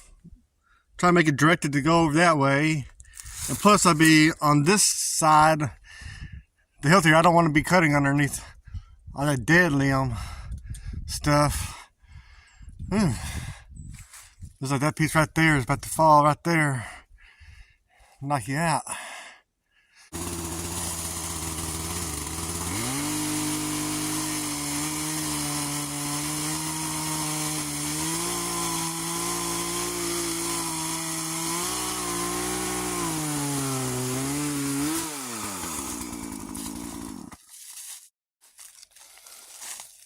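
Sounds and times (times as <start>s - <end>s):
chainsaw cutting wood: 20.1s - 37.4s.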